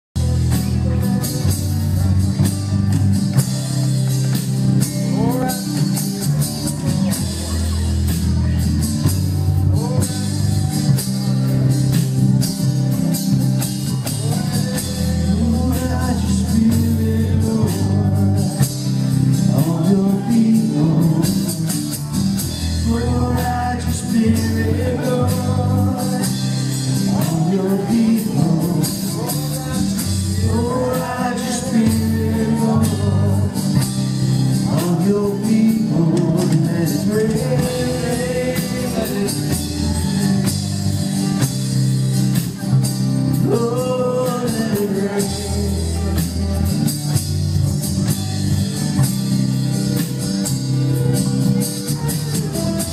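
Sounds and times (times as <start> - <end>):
worship band playing: 0.2 - 52.9
voices singing: 13.7 - 41.6, 42.5 - 47.0.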